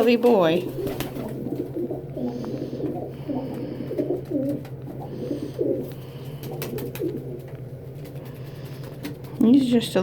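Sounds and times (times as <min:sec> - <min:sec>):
steady low hum: 0:00.0 - 0:10.0
pigeon cooing: 0:00.6 - 0:09.2.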